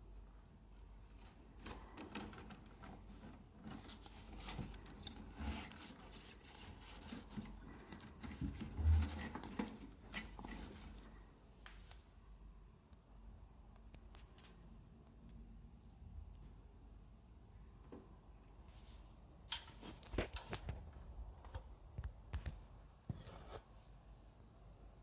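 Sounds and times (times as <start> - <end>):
rustling and clicking handling: 1.1 - 12.0.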